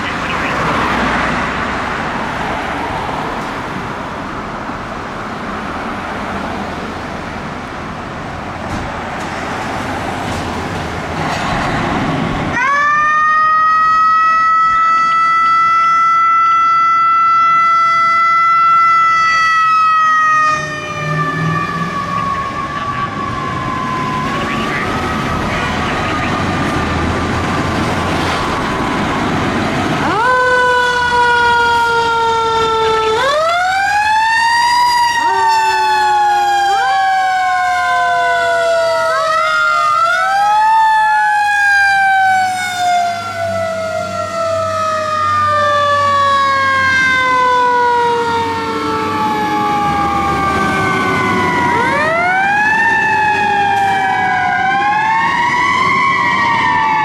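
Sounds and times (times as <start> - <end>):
fire truck siren wailing: 0.0 - 8.6, 12.1 - 57.0
passing truck engine and road noise: 0.0 - 57.0.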